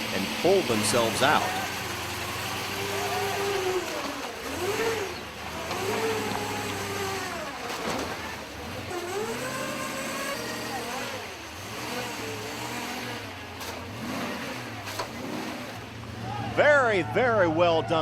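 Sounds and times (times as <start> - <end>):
low engine drone: 0.0 - 11.6
truck engine revving: 0.0 - 18.0.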